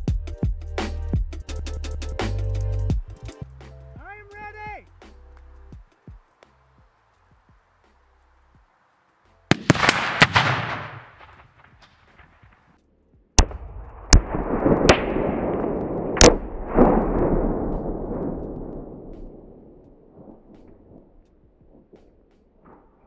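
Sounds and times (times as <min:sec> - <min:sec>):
explosions: 0:09.5 - 0:12.4, 0:13.4 - 0:21.2
rifle shots: 0:09.5 - 0:12.4, 0:13.4 - 0:20.5.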